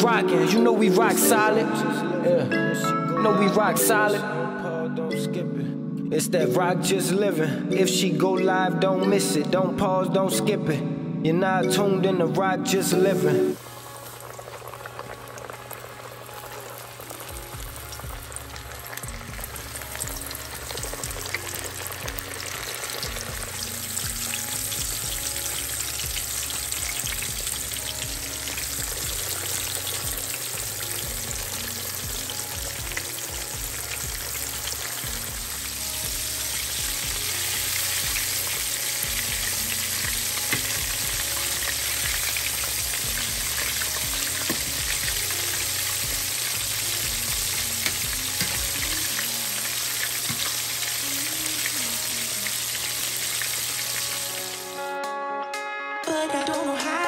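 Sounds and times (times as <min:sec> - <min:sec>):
fish sizzling in hot oil: 0:13.5 - 0:54.8.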